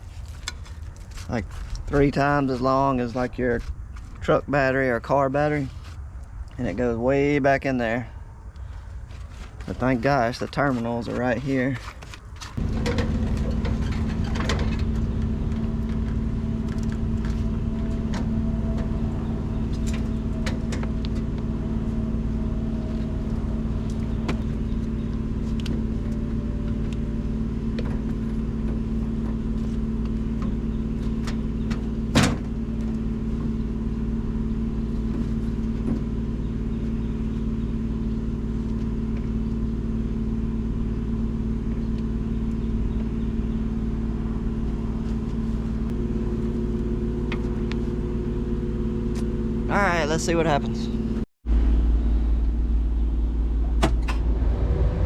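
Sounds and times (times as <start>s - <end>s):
diesel engine idling: 12.5s - 55.0s.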